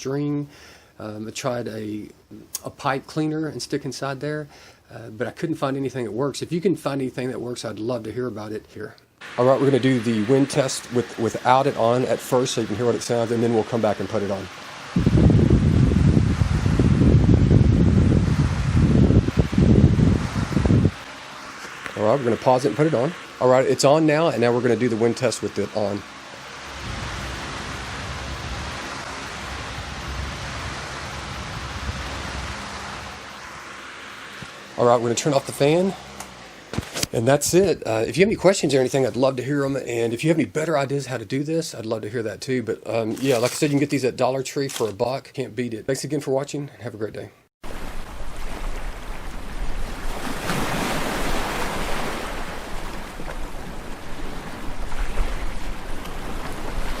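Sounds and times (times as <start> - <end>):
fan wind noise on microphone: 9.2 - 40.1, 47.6 - 57.0.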